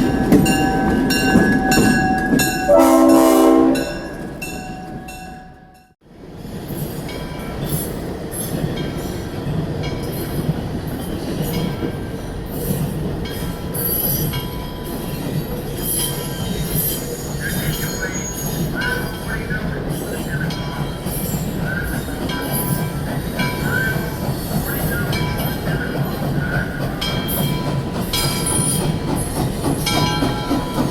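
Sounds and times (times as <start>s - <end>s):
wheels squealing on rails: 0.0s - 5.5s, 10.0s - 30.9s
train rumbling on track: 0.0s - 30.9s
train horn: 1.8s - 5.1s.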